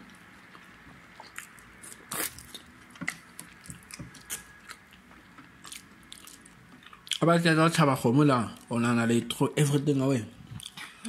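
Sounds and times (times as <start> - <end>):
chewing and mouth smacking: 0.1 - 7.3, 10.5 - 11.0.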